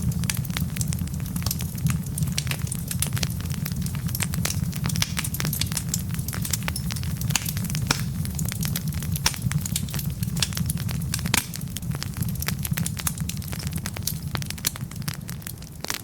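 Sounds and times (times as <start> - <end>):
logs crackling and popping: 0.0 - 16.0
low rumble of flames: 0.0 - 16.0.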